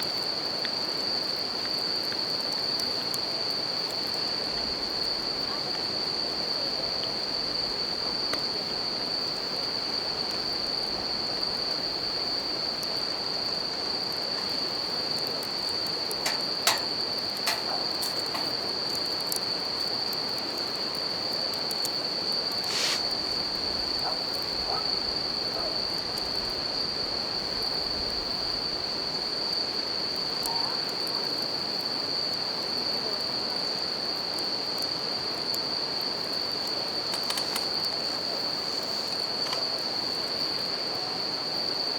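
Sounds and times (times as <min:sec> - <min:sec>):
campfire crackling: 0:00.0 - 0:32.6, 0:34.2 - 0:41.8
crickets high ringing: 0:08.6 - 0:30.7, 0:35.3 - 0:41.9.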